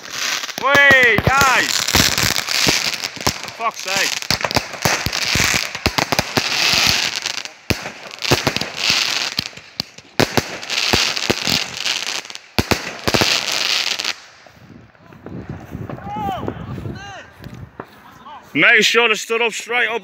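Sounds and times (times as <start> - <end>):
firework bangs with crackling: 0.0 - 14.5, 15.2 - 16.1.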